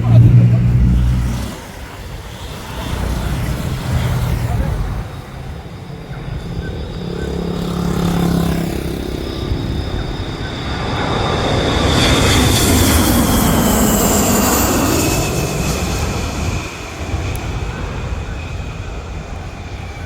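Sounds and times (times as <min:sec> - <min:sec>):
jet engines passing by: 0:00.0 - 0:20.0
high jet whine falling in pitch: 0:04.8 - 0:18.3.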